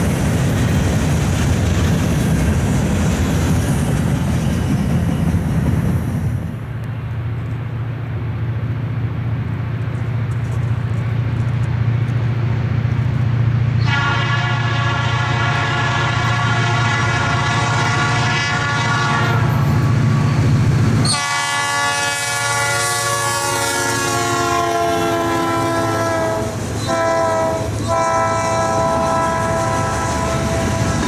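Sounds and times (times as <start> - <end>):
locomotive rumble: 0.0 - 31.0
locomotive air horn: 13.8 - 20.3, 21.0 - 31.0.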